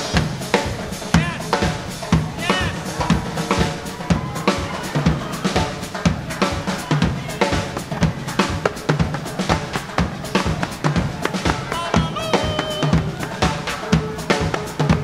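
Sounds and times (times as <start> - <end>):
drum thuds and snare cracks: 0.0 - 15.0
latin dance band playing: 0.0 - 15.0.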